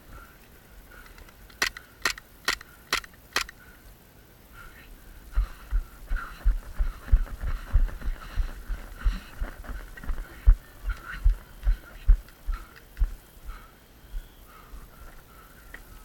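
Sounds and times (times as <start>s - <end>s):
airsoft pistol shots: 1.6s - 3.5s
running footsteps thudding: 5.4s - 13.2s.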